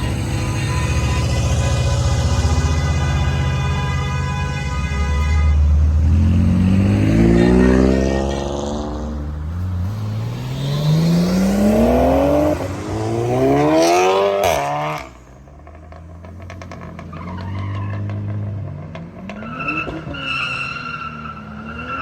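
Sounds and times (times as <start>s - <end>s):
car engine accelerating: 5.9s - 20.0s.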